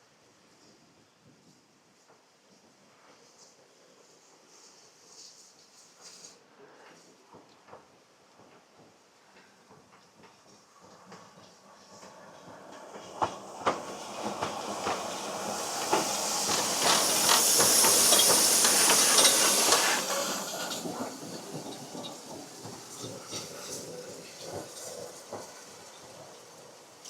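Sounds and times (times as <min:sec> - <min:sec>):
train clattering: 0:04.1 - 0:27.0
wheels clicking and knocking: 0:07.4 - 0:26.4
steam hissing: 0:08.0 - 0:27.0.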